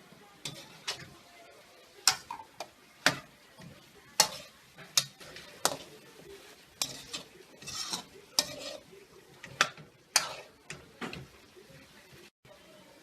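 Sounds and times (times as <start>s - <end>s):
utensil scraping pan: 0.4s - 1.2s, 2.0s - 11.3s.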